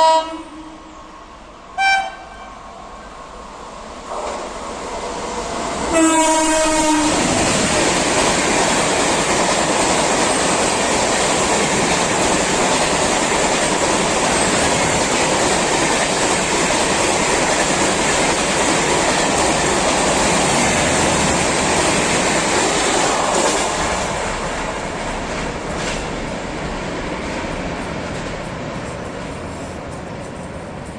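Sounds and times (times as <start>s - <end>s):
train horn: 0.0s - 1.1s, 1.8s - 2.6s, 5.9s - 7.4s
train wheels rushing on rail: 0.0s - 30.9s.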